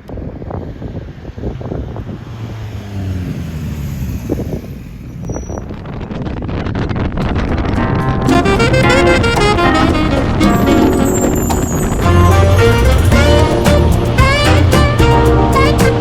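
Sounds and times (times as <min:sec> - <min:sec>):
wind noise on microphone: 0:00.0 - 0:16.0
motorcycle engine running: 0:04.3 - 0:16.0.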